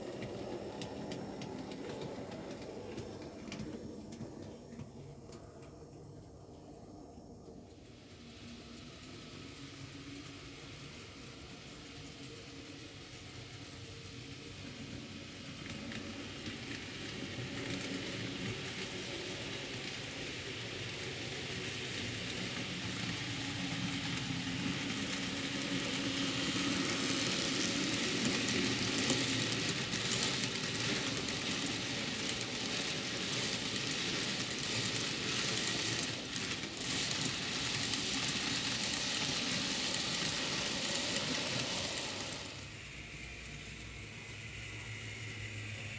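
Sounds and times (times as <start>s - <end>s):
model train wheels rattling on rail: 15.6s - 45.9s.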